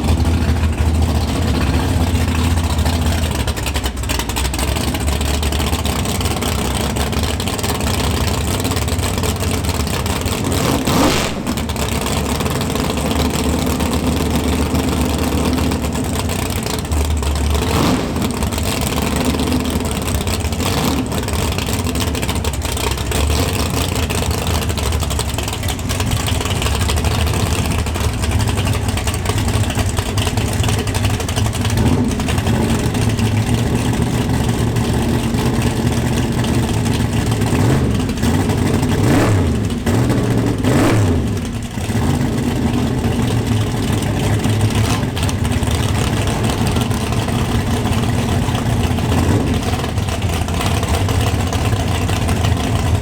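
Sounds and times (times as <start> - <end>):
engine revving: 0.0 - 22.3, 31.6 - 53.0
car exhaust running: 0.0 - 53.0.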